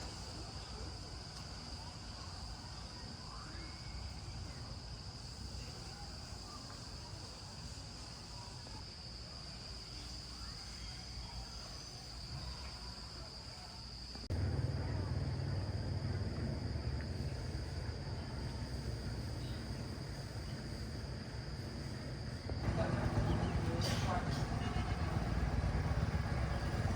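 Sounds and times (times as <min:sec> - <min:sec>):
insects chirring: 0:00.0 - 0:26.9.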